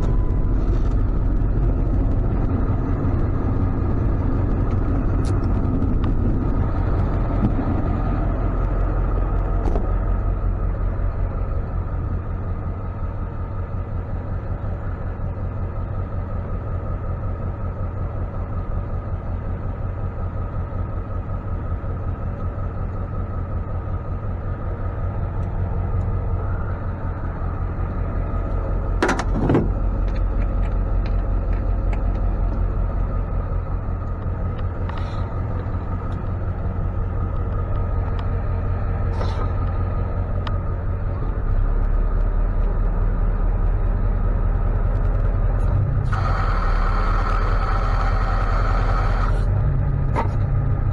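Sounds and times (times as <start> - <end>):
faint whine: 0.0 - 12.2, 45.1 - 50.4
truck engine and road rumble: 0.0 - 50.9.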